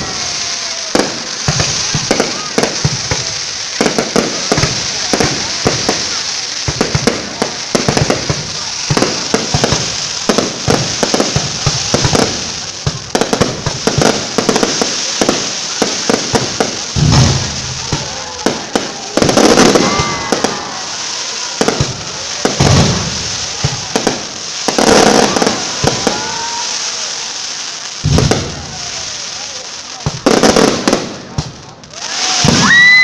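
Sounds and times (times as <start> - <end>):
fireworks crackling and popping: 0.0 - 33.0
deep firework shell bursts: 16.9 - 18.2.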